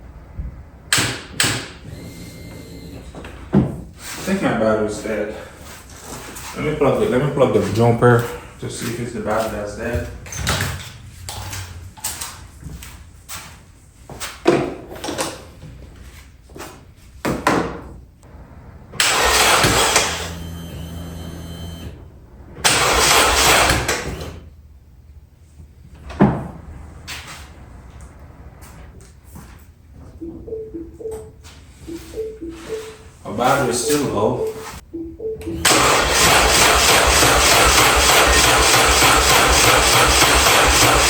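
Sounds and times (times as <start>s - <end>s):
starter motor cranking engine: 0.9s - 3.3s, 18.8s - 24.5s, 35.6s - 41.0s.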